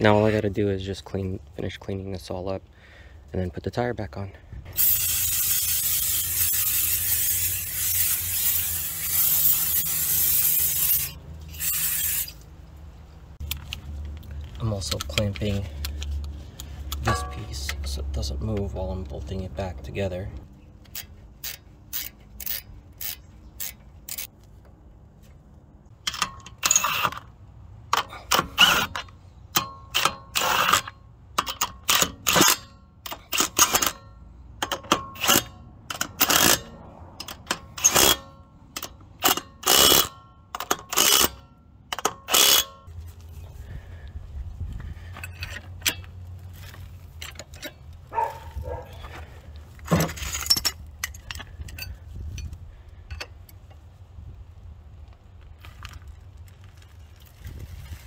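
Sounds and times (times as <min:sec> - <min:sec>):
low steady rumble: 0:00.0 - 0:26.6
ratchet wrench clicking: 0:04.7 - 0:12.4, 0:20.8 - 0:24.3, 0:27.9 - 0:34.0, 0:34.6 - 0:42.9.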